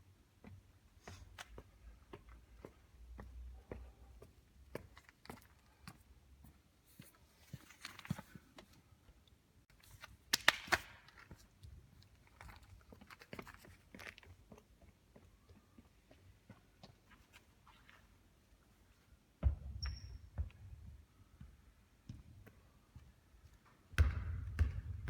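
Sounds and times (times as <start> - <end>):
basketball thuds and taps: 23.9 - 25.0.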